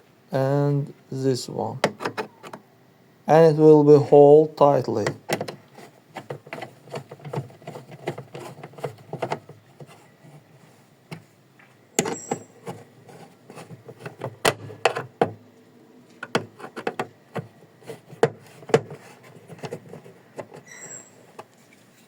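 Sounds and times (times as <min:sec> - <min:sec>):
high squeaks: 0:12.1 - 0:12.6, 0:20.6 - 0:21.3.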